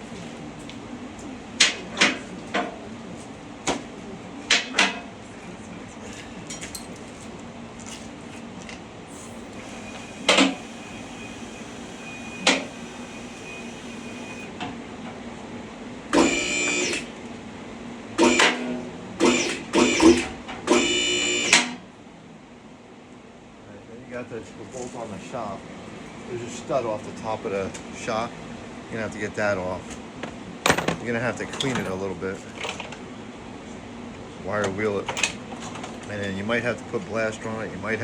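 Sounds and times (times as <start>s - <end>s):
hand tools clanking against metal: 30.7s - 32.0s.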